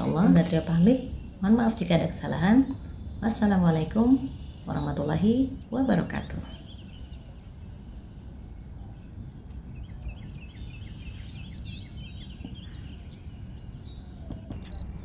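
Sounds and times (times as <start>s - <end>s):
low background hum: 0.0s - 15.0s
small birds chirping: 0.0s - 15.0s.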